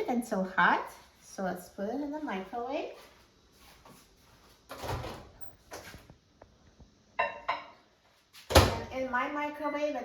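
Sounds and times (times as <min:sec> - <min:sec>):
microwave door thump: 0:08.5 - 0:08.9.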